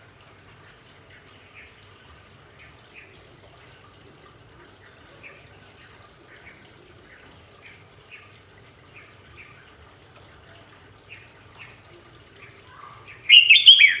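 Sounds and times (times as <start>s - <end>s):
bird call with falling notes: 13.3s - 14.0s
small bird chirping: 13.3s - 14.0s.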